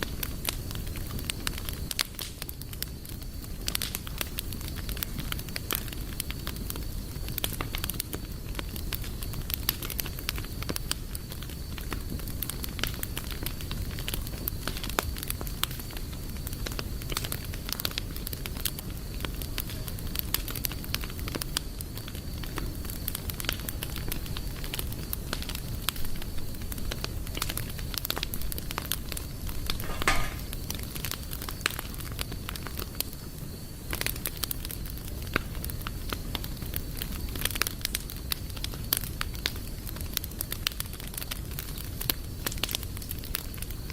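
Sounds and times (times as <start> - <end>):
campfire crackling and popping: 0.0 - 43.9
low rumble of flames: 0.0 - 43.9.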